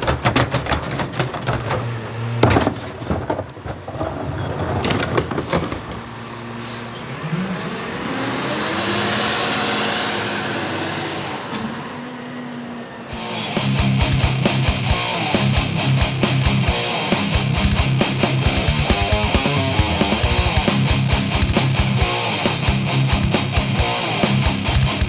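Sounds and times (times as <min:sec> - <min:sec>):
garbage truck knocking and clanking: 0:00.0 - 0:05.7
truck engine revving: 0:13.2 - 0:25.0.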